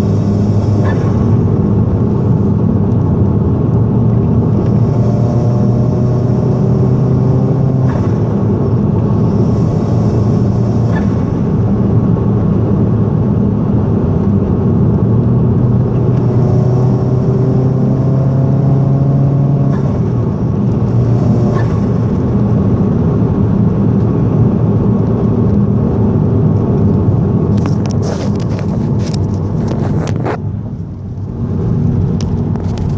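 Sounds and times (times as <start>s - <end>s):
car engine running loudly: 0.0s - 32.9s
high-pitched turbo screech: 9.1s - 11.7s.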